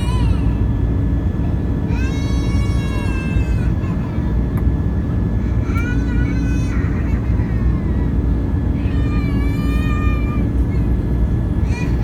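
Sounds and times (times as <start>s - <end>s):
jet engines roaring in cabin: 0.0s - 12.0s.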